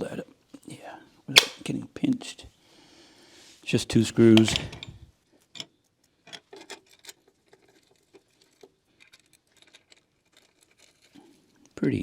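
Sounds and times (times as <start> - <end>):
wrench and metal parts clicking: 4.4 - 5.0.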